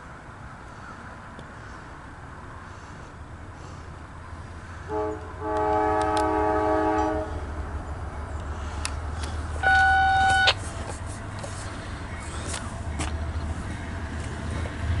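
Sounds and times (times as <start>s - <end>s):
passing train rumble: 0.0s - 15.0s
locomotive air horn blasts: 4.8s - 7.7s, 9.6s - 10.6s.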